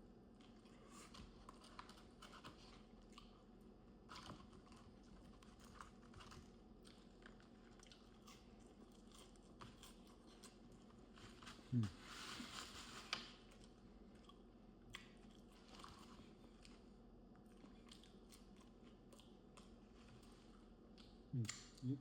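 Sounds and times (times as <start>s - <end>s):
small food crunches: 0.3s - 11.1s, 13.4s - 20.3s
person chewing: 4.2s - 11.9s, 13.5s - 16.8s, 17.4s - 22.0s
soft mouth clicks: 21.0s - 22.0s.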